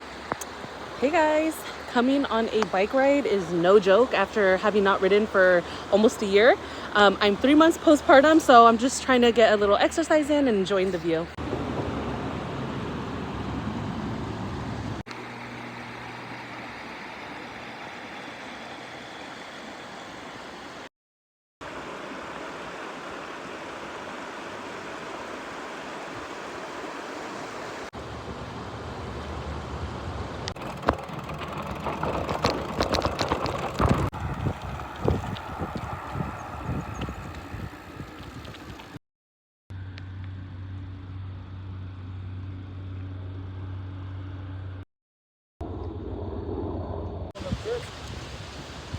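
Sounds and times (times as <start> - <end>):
wind hiss and rolling: 0.0 - 10.3, 21.7 - 39.0, 47.4 - 48.9
knocks and rattles: 30.5 - 35.4.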